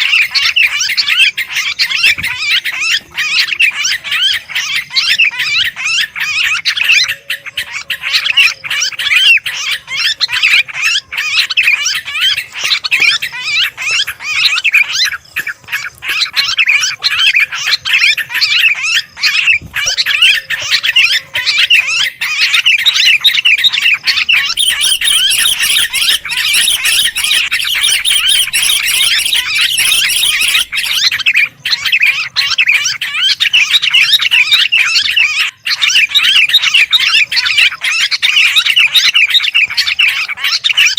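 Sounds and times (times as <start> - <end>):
bulbuls chattering chorus: 0.0 - 40.9
high thin bird calls: 10.0 - 33.8.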